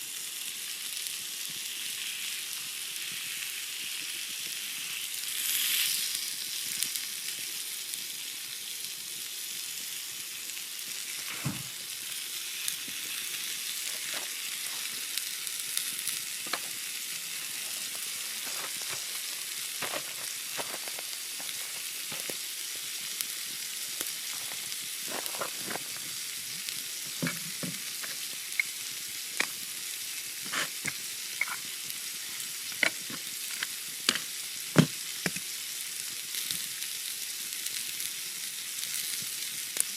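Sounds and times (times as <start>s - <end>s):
steak sizzling on griddle: 0.0s - 39.9s
sharp pops and crackles: 12.7s - 35.6s.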